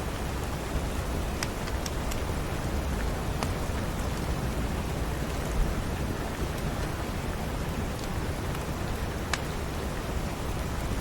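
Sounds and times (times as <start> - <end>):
steady rain: 0.0 - 11.0
fireplace crackles: 0.2 - 7.1.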